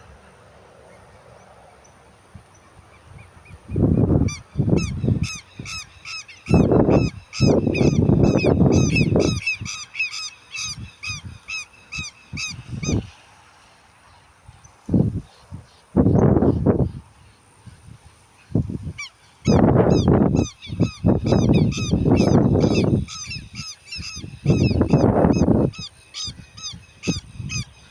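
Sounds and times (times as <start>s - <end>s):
bird calling rapidly: 2.9s - 13.1s, 18.4s - 27.9s.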